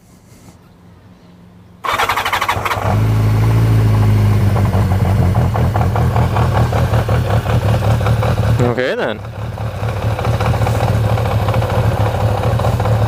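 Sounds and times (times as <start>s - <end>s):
electric starter cranking: 1.8s - 3.7s
motorcycle engine idling: 1.8s - 13.0s.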